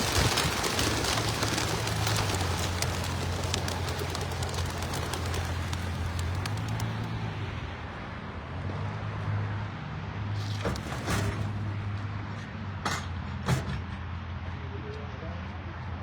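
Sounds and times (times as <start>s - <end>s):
vehicle engine idling: 0.0s - 7.2s.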